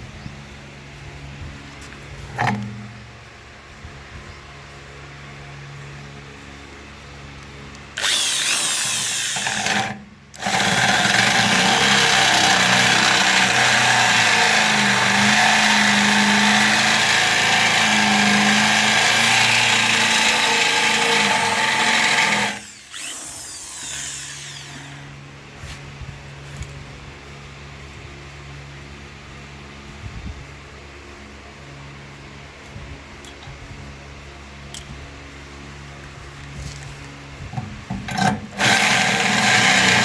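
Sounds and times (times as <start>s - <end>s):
power tool running: 8.0s - 25.2s, 38.0s - 40.0s.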